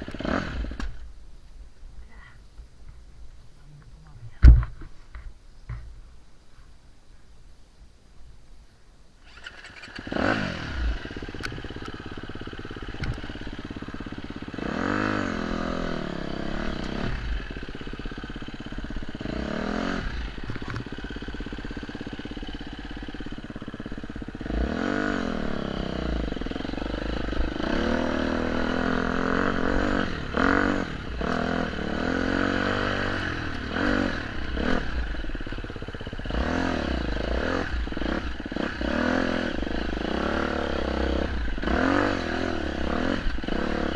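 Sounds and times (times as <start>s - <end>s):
off-road motorcycle engine revving: 0.0s - 1.1s, 9.2s - 43.9s.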